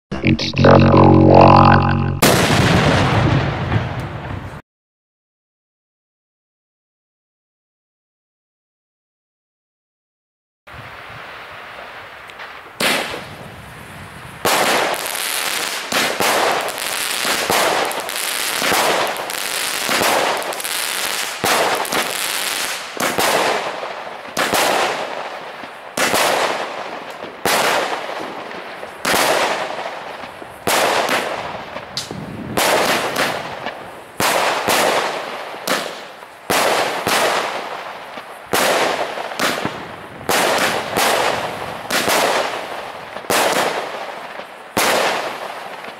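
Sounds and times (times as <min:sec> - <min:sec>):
firework bangs: 0:12.7 - 0:13.6, 0:14.4 - 0:45.9.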